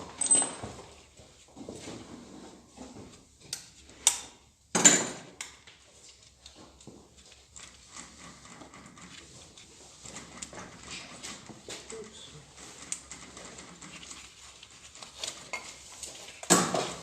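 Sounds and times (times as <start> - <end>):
tools rattling clatter: 0.0 - 1.0.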